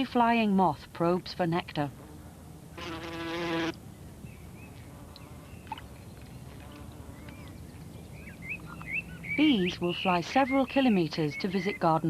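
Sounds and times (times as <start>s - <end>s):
insect wings buzzing: 2.0s - 3.8s
faint bird chirps: 3.9s - 12.0s.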